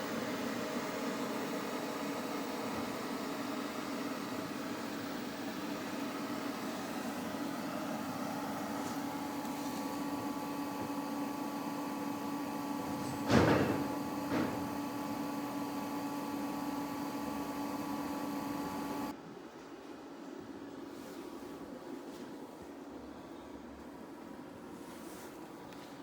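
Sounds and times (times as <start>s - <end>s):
electric truck hum and whine: 0.0s - 19.2s
loud clunk: 12.8s - 14.8s.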